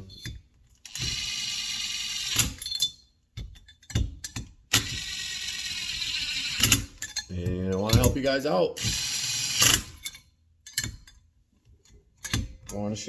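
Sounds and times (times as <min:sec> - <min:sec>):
handheld power tool whining: 0:04.7 - 0:07.1, 0:08.8 - 0:10.1.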